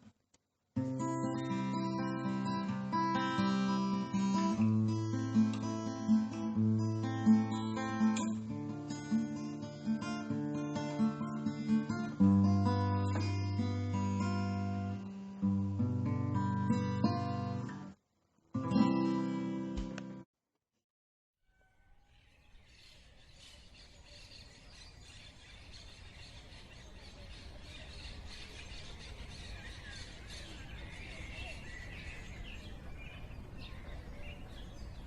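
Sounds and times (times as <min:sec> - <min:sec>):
acoustic guitar music: 0:00.8 - 0:20.2.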